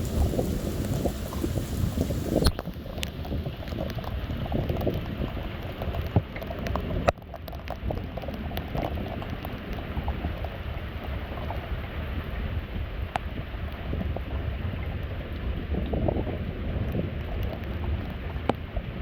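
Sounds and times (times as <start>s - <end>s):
rain pouring: 0.0s - 12.8s
raindrops tapping close by: 0.0s - 19.0s.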